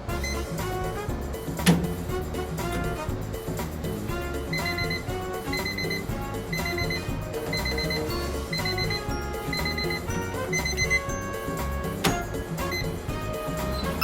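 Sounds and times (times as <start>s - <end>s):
background music with steady beat: 0.0s - 14.0s
rapid beeping synth notes: 0.1s - 0.9s, 4.3s - 14.0s.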